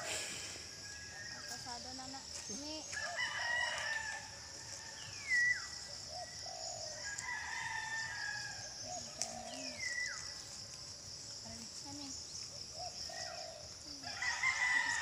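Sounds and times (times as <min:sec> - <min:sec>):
high insect hiss: 0:00.0 - 0:15.0
roosters crowing: 0:03.0 - 0:05.0, 0:06.5 - 0:09.7, 0:13.3 - 0:15.0.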